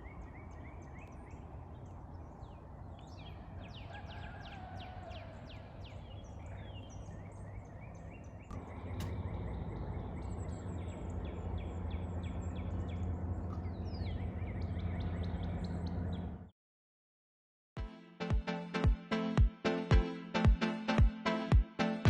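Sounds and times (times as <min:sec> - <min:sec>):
low rumble: 0:08.4 - 0:16.5.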